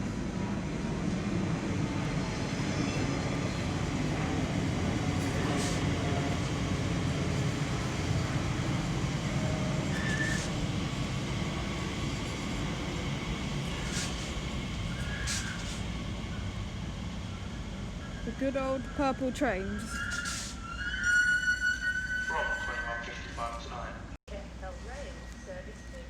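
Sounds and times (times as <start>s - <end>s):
electric train rumbling: 0.0s - 26.0s
high-pitched squeaks: 19.6s - 22.9s.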